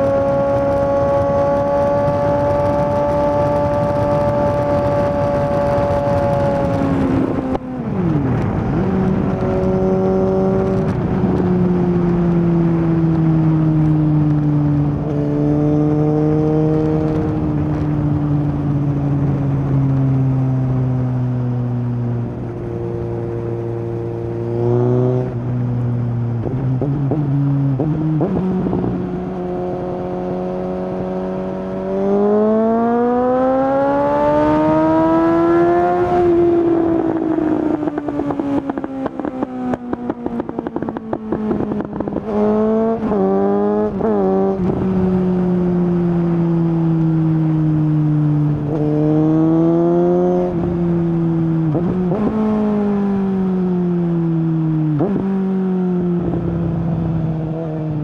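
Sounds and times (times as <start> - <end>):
motorcycle engine revving: 0.0 - 58.0
exhaust crackling and popping: 0.1 - 15.2.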